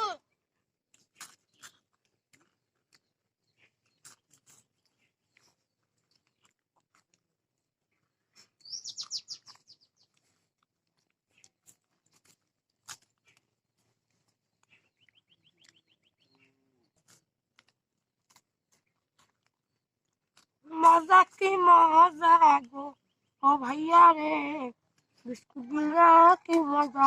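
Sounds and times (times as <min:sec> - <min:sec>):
crunching biscuits being chewed: 0:00.2 - 0:21.6, 0:24.7 - 0:25.8.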